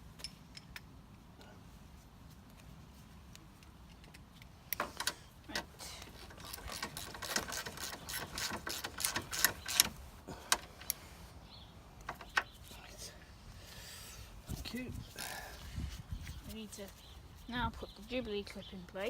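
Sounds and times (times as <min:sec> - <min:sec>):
socket ratchet clicking: 0:06.1 - 0:10.0.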